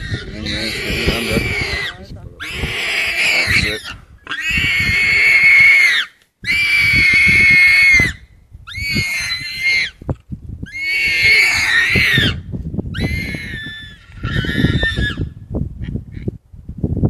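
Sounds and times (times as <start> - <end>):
warthog squealing in distress: 0.0 - 10.0, 10.7 - 12.4, 13.0 - 15.3.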